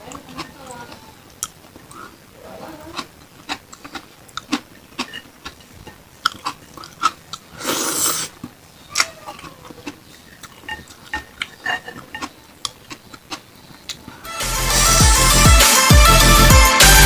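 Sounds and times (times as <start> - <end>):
chewing with mouth clicks: 0.0 - 2.2, 2.9 - 7.6, 8.4 - 14.2.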